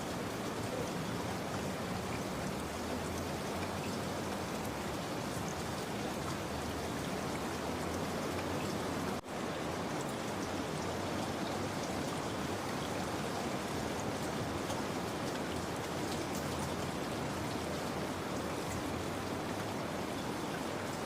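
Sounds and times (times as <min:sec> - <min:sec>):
steady rain falling: 0:00.0 - 0:21.0
raindrop patter: 0:00.1 - 0:21.0.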